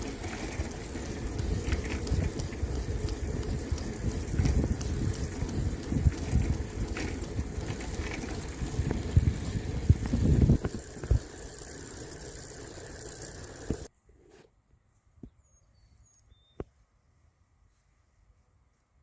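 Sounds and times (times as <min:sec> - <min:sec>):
wind buffeting the microphone: 0:00.0 - 0:11.3
bicycle bumps and rattles: 0:00.0 - 0:13.9.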